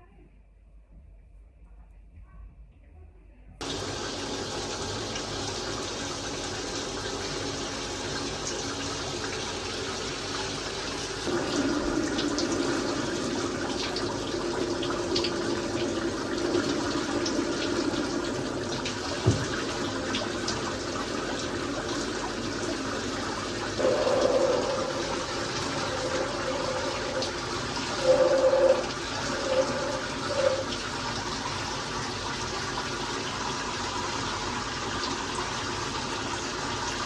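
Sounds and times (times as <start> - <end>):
tap water running: 3.6 - 37.0
knock: 19.2 - 19.6.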